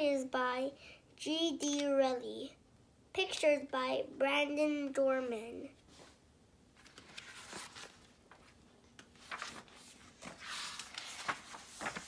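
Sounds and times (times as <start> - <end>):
paper rustling: 6.8 - 12.0.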